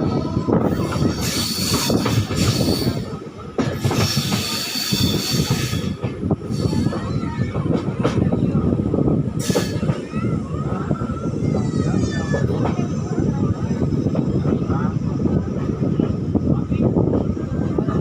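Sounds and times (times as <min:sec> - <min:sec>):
train wheels squealing: 0:00.8 - 0:03.1, 0:03.8 - 0:07.4, 0:09.4 - 0:10.0.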